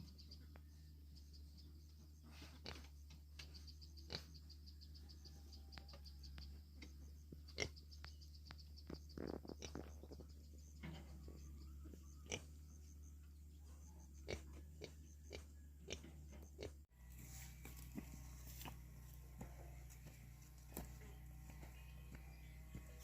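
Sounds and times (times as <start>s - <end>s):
low hum: 10.0s - 23.0s.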